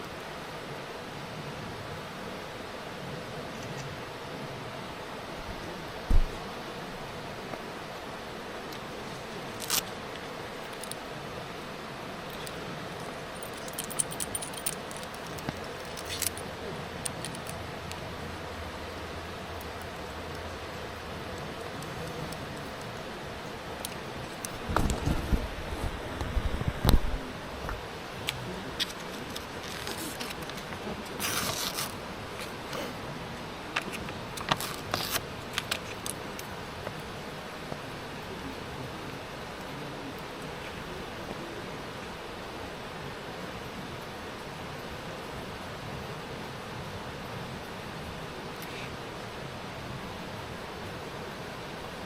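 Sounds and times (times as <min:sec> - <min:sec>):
steady background hiss: 0:00.0 - 0:52.0
light metallic clinks and rattles: 0:10.6 - 0:11.1, 0:12.2 - 0:18.0.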